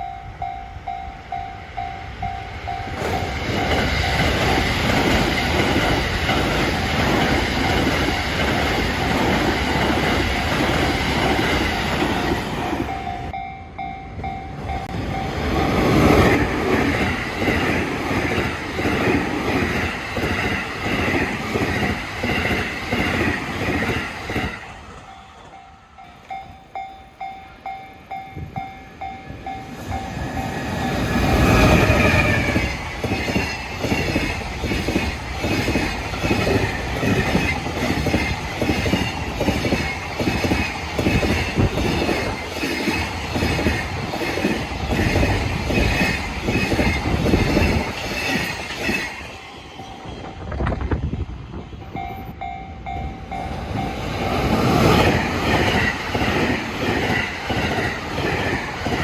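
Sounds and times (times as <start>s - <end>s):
level crossing warning bell: 0.0s - 5.7s, 6.8s - 16.3s, 24.7s - 31.4s, 51.9s - 54.5s.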